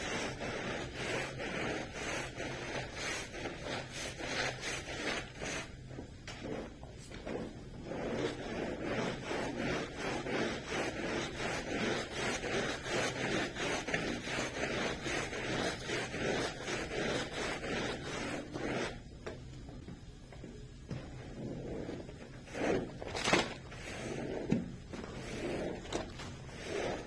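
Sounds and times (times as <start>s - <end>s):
hand tool rubbing carpet: 0.0s - 19.1s, 20.9s - 27.0s.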